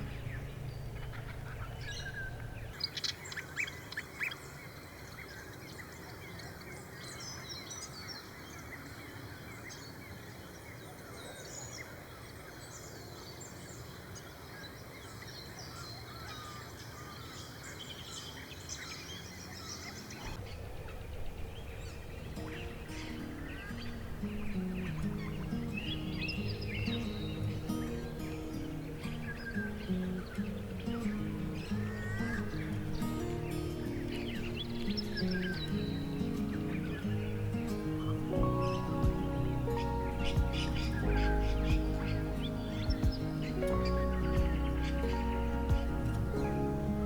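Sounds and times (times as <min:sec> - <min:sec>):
soft background music: 0:00.0 - 0:02.8, 0:22.4 - 0:47.0
small birds chirping: 0:00.0 - 0:47.0
steady outdoor hiss: 0:00.0 - 0:47.0.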